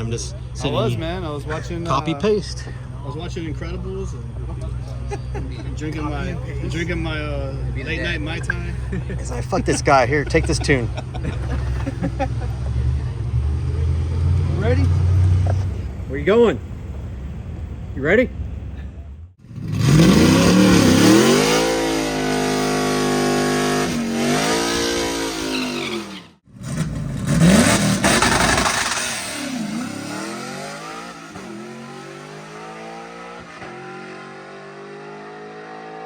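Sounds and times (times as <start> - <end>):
drag car engine at full throttle: 19.4 - 36.0.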